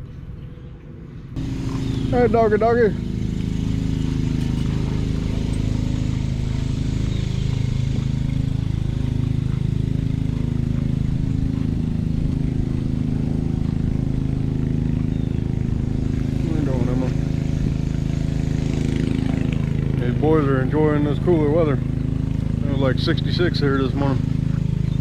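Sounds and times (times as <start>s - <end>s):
engine humming steadily: 0.0s - 25.0s.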